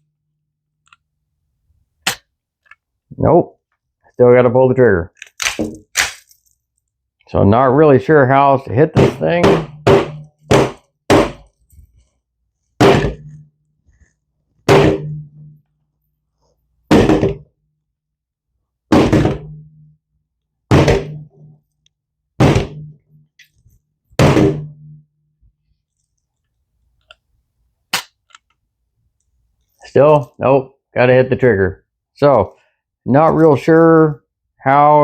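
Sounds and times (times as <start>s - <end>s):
heavy thunks on pistol: 9.0s - 11.5s, 12.8s - 13.4s.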